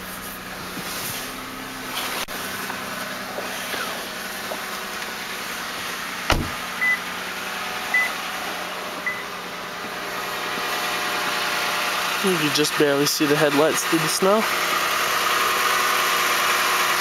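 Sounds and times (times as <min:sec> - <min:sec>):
car engine idling: 0:00.0 - 0:17.0
sharp thump: 0:06.3 - 0:06.7
short high beeps: 0:06.8 - 0:07.0, 0:09.1 - 0:09.3.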